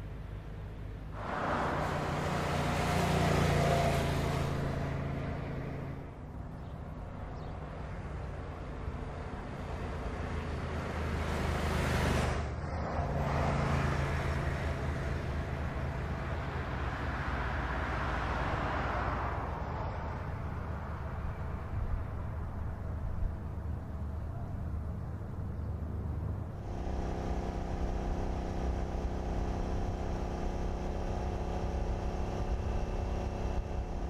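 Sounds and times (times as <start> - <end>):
car engine running: 26.1 - 34.0.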